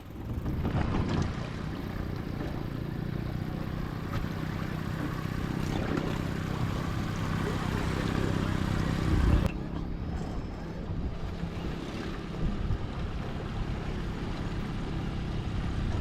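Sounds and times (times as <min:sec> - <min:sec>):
boat motor running: 0:00.0 - 0:16.0
choppy water: 0:00.0 - 0:16.0
wind on microphone: 0:05.8 - 0:16.0.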